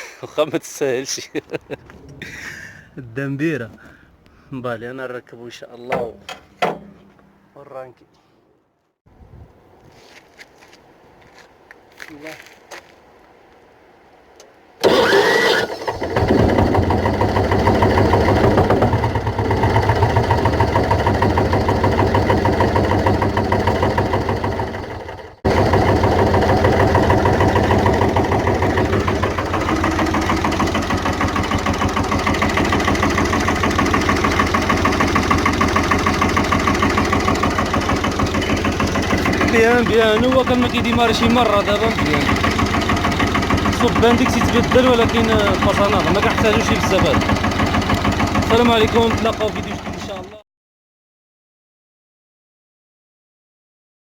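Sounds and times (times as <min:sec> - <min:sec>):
starter motor cranking: 0:14.8 - 0:50.3
car engine idling: 0:15.8 - 0:50.4.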